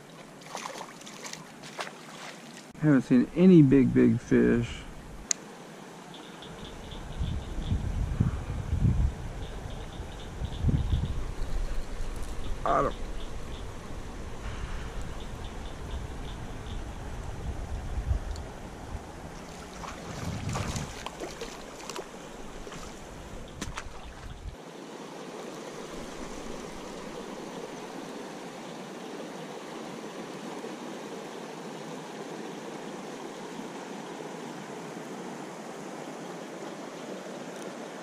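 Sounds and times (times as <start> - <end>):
river water flowing: 0.0 - 7.0, 11.3 - 38.0
sharp clicks and splashes: 19.4 - 24.5.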